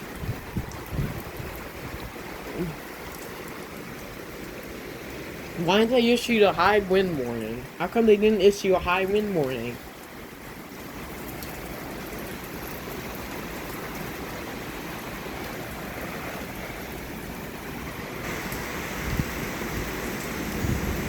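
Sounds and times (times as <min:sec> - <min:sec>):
wind gusts hitting microphone: 0:00.0 - 0:02.7, 0:17.8 - 0:21.0
heavy rain pouring: 0:00.0 - 0:21.0.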